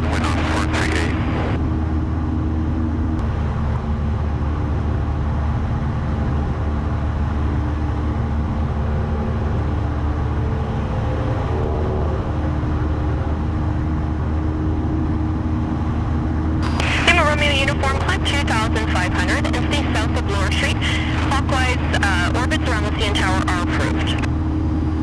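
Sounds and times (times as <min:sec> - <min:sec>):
aircraft engine and propeller drone: 0:00.0 - 0:25.0.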